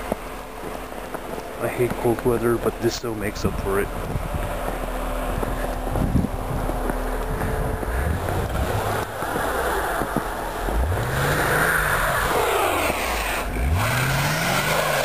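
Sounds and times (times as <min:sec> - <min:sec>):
car engine revving: 0:03.9 - 0:15.0
wheels spinning in snow: 0:03.9 - 0:15.0.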